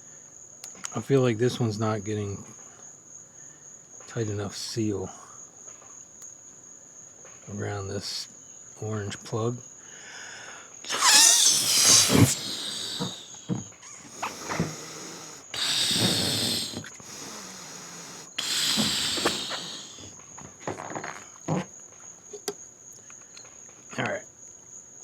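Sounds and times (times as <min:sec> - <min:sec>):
crickets chirring: 0:00.0 - 0:25.0
gasps for air: 0:10.0 - 0:20.1
breaths blowing up a balloon: 0:10.9 - 0:20.1.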